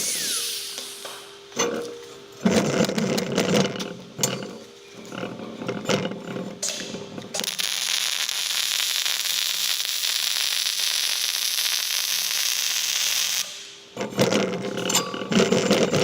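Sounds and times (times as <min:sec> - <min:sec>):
welding arc crackling hiss: 0:00.0 - 0:01.4, 0:06.6 - 0:13.9.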